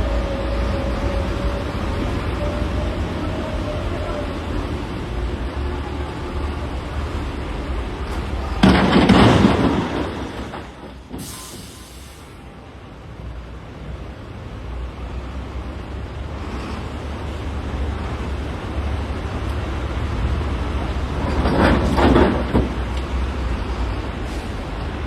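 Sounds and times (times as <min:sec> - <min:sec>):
diesel engine rumbling: 0:00.0 - 0:25.0
rock crashing into truck bed: 0:08.5 - 0:11.3, 0:21.3 - 0:22.8
short hiss: 0:11.2 - 0:12.4.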